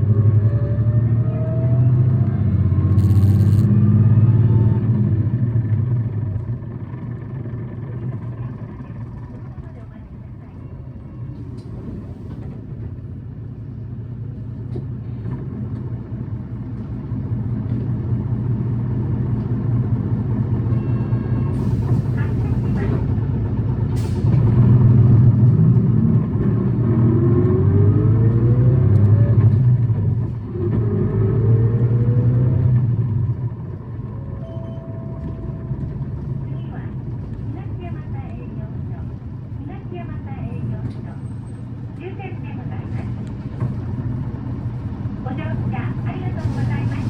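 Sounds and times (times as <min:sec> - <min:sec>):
bus diesel engine revving: 0:00.0 - 0:08.2, 0:21.3 - 0:34.0, 0:40.8 - 0:47.0.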